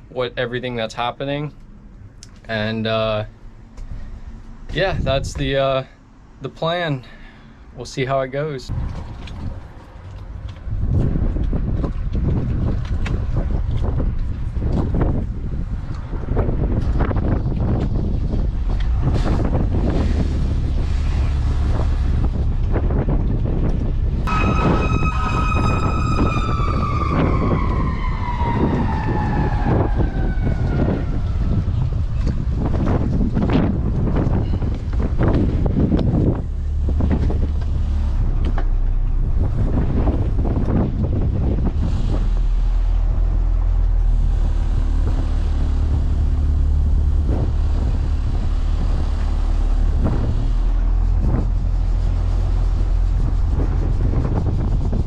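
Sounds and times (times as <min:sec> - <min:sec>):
wind buffeting microphone: 0:00.0 - 0:05.8, 0:08.7 - 0:55.0
steady low rumble: 0:00.0 - 0:55.0
high-pitched tone sliding downward: 0:24.3 - 0:31.5.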